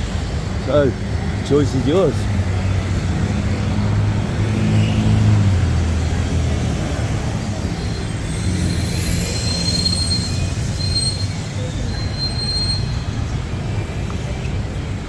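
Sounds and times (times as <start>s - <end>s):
street traffic rumble: 0.0s - 15.0s
high-pitched squeals: 6.1s - 13.4s.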